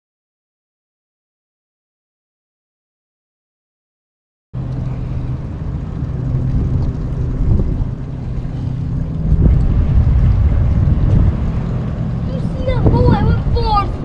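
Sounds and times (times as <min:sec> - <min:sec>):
noisy rumble: 0:04.6 - 0:14.0.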